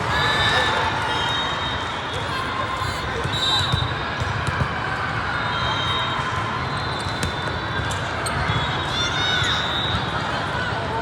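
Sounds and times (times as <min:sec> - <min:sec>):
crowd voices hum: 0:00.0 - 0:11.0
sneakers squeaking on court: 0:07.0 - 0:08.8.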